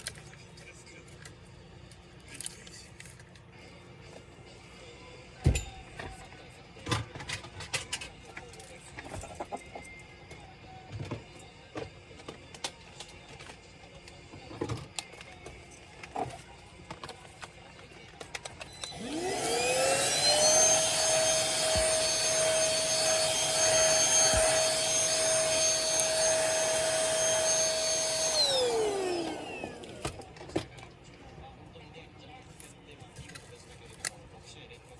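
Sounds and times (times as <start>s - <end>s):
electric motor whine: 18.6s - 30.5s.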